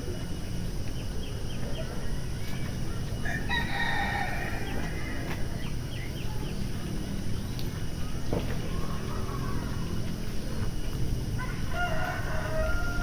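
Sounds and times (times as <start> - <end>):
small birds chirping: 0.0 - 13.0
rooster crowing: 3.2 - 5.4, 11.4 - 13.0.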